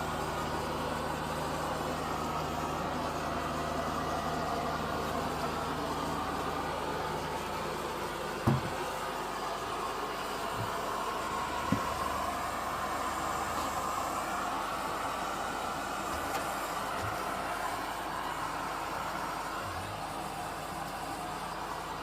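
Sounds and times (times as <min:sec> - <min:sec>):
robot vacuum cleaner running: 0:00.0 - 0:22.0
low thump: 0:08.4 - 0:08.9.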